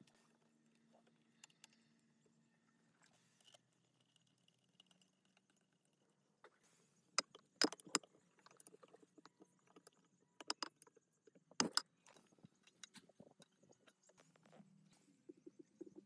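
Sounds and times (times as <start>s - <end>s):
tools and metal parts clicking: 7.2s - 10.9s, 11.6s - 14.4s.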